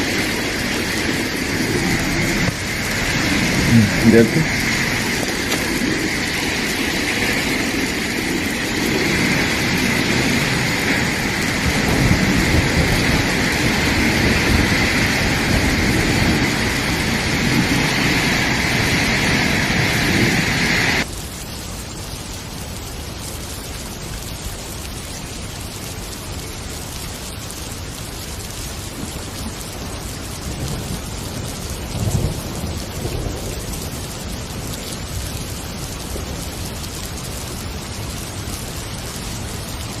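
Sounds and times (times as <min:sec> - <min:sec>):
low rumble: 0:00.0 - 0:21.0
heavy rain rushing: 0:00.0 - 0:40.0.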